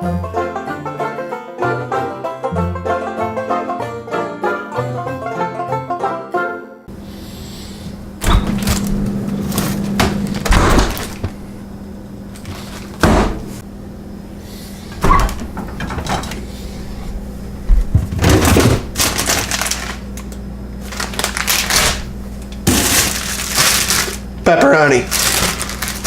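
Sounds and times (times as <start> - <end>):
packages being handled: 12.3 - 13.0, 18.1 - 26.0.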